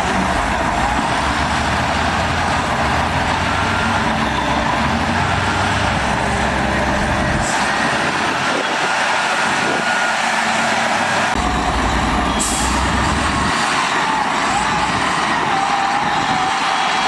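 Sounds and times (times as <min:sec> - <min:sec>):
low engine rumble: 0:00.0 - 0:07.6, 0:11.3 - 0:13.5
heavy machinery mechanical noise: 0:00.0 - 0:15.4.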